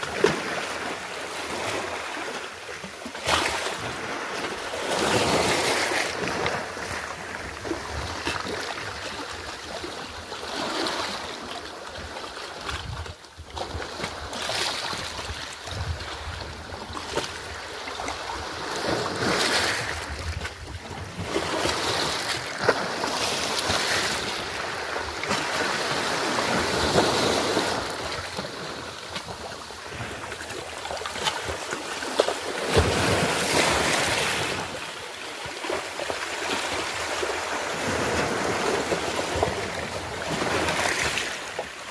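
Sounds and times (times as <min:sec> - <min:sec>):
sea waves breaking on shore: 0:00.0 - 0:41.9
wind on microphone: 0:12.6 - 0:31.6.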